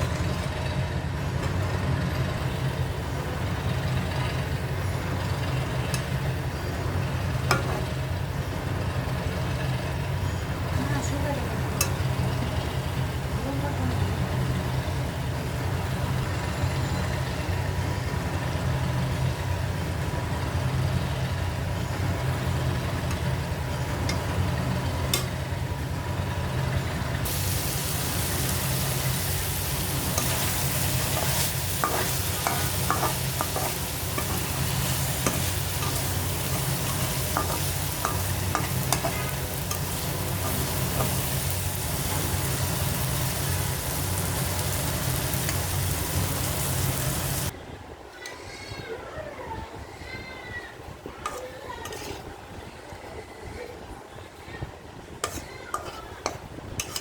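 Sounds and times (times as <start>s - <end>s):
food sizzling in a pan: 27.2s - 47.5s.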